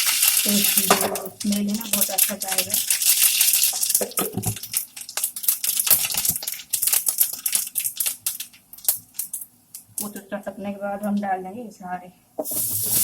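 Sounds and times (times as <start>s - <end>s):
faint oil sizzle: 0.0s - 9.5s, 12.4s - 13.0s
seeds popping in hot oil: 0.0s - 10.1s.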